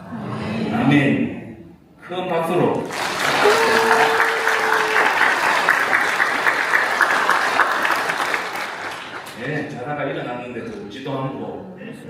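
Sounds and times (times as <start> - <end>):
crowd applauding: 2.8 - 9.8.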